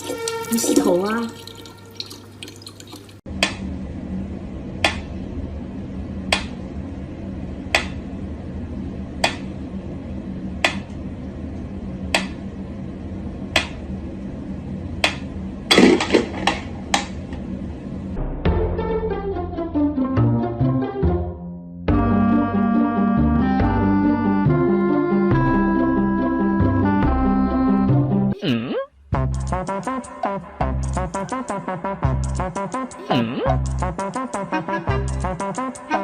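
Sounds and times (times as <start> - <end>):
steady low hum: 3.3 - 18.5, 28.9 - 36.0
hard object tapping clicks: 7.7 - 8.0, 9.2 - 9.5, 10.6 - 10.9, 12.1 - 12.4, 13.6 - 13.8.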